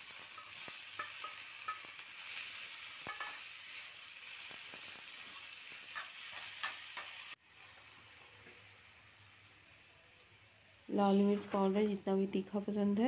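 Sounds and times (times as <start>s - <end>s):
food sizzling in a frying pan: 0.0s - 11.8s
steel spoon scraping a pan: 0.1s - 7.4s.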